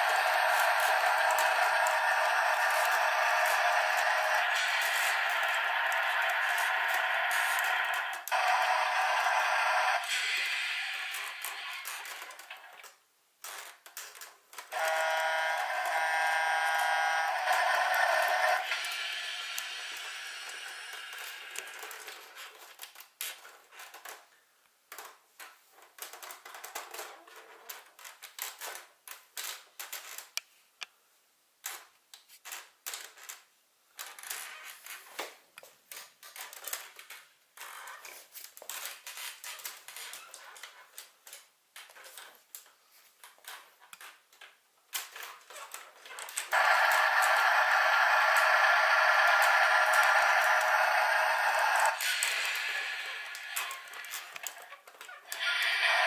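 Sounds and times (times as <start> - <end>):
toy electronic sound effect: 0.0 - 12.6, 14.7 - 22.4, 46.5 - 56.0
plastic toy clicking and rattling: 0.0 - 24.3, 38.2 - 56.0.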